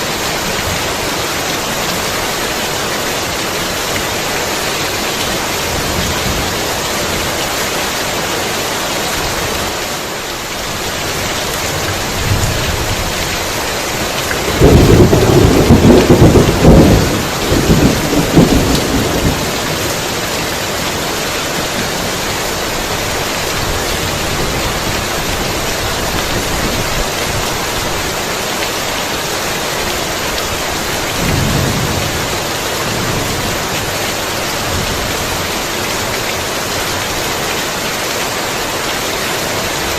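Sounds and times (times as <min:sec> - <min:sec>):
heavy rain: 0:00.0 - 0:39.9
thunder crack and rumble: 0:14.4 - 0:19.9, 0:31.2 - 0:34.0.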